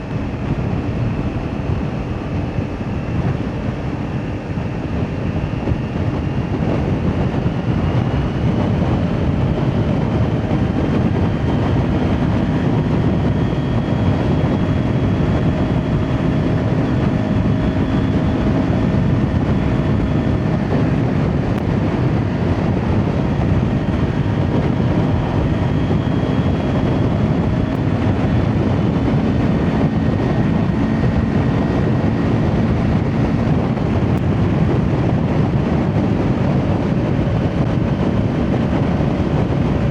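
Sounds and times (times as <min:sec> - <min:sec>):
motorcycle engine running: 0:00.0 - 0:39.9
wind rush over microphone: 0:00.0 - 0:39.9.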